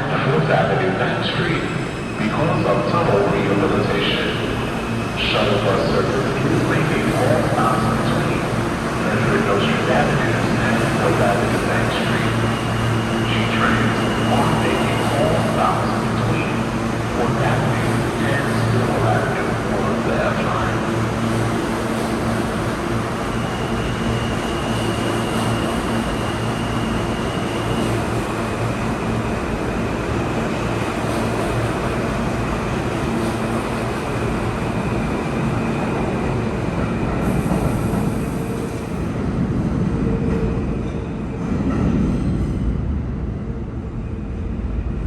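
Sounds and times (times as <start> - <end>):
traction motors humming and whining: 1.0 - 39.1
wheels rumbling on rail: 1.0 - 45.0.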